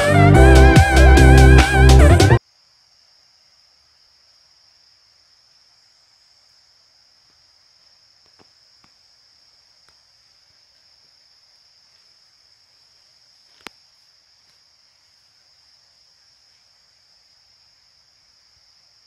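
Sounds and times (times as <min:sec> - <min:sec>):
insects chirping: 0:02.4 - 0:19.0.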